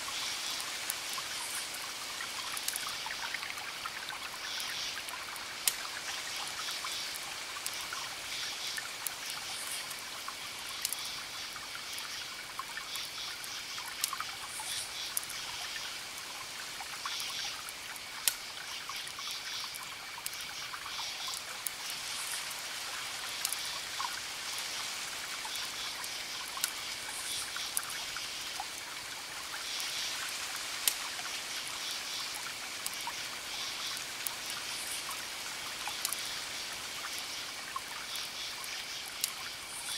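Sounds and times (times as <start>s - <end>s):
wood fire crackling and popping: 2.4s - 3.0s, 5.0s - 5.9s, 9.0s - 11.1s, 17.6s - 19.2s, 23.3s - 23.7s, 30.5s - 31.2s.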